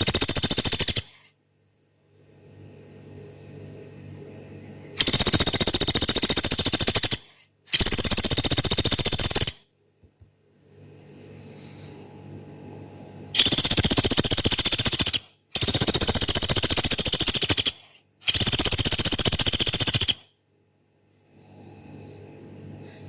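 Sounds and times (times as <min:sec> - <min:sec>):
woodpecker trilling: 0:00.0 - 0:01.2, 0:05.0 - 0:09.6, 0:13.4 - 0:20.2
faint low hum: 0:00.0 - 0:23.0.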